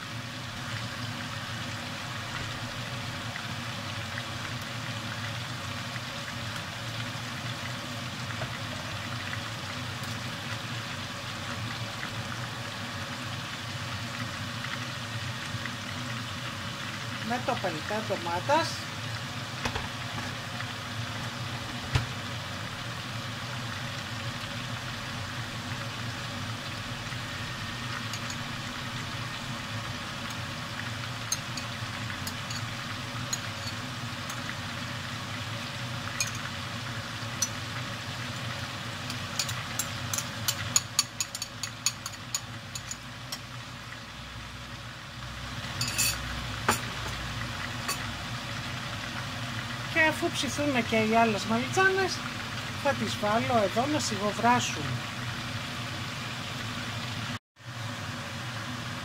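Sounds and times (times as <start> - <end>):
eggplants sizzling in oil: 0.0 - 59.0
spoon clinking on glass bowl: 28.1 - 28.4, 39.4 - 43.0, 45.8 - 46.8.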